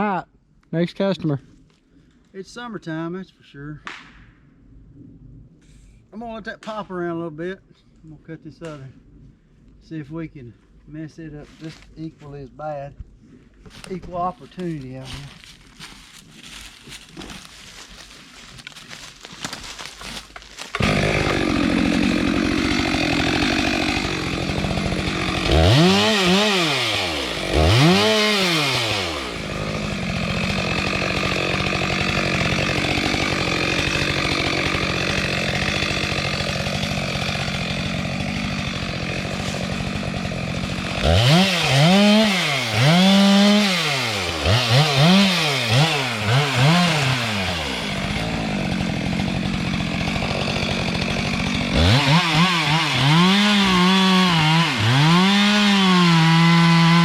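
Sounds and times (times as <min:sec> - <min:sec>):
chainsaw cutting: 0:14.6 - 0:57.0.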